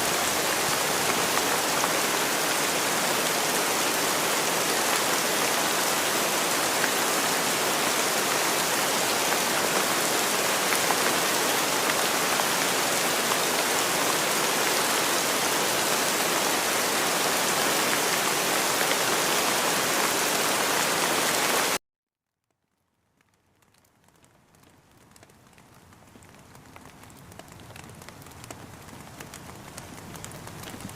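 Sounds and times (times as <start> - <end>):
heavy rain hiss: 0.0 - 21.8.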